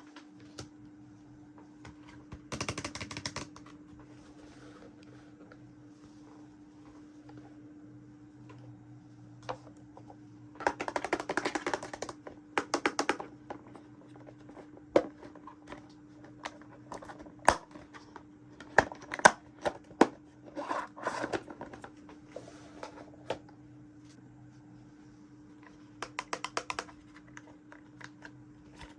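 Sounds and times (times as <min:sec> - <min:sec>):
faint steady hum: 0:00.0 - 0:28.9.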